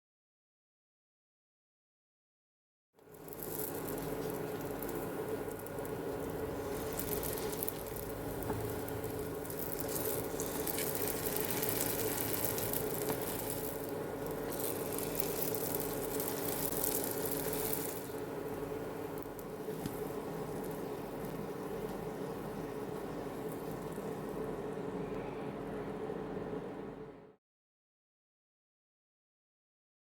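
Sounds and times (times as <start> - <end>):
food sizzling in oil: 3.0 - 24.5.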